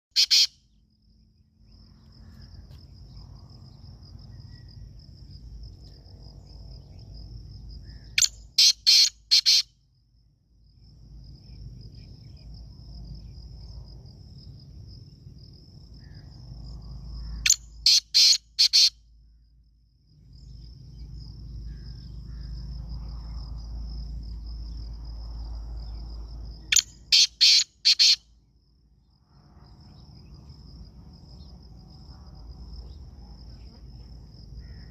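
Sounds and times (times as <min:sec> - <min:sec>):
bird calling harsh notes: 0:00.1 - 0:00.6, 0:08.2 - 0:09.7, 0:17.5 - 0:18.9, 0:26.7 - 0:28.2
insect trilling: 0:00.1 - 0:00.8, 0:01.7 - 0:09.7, 0:15.5 - 0:19.0, 0:20.3 - 0:28.3.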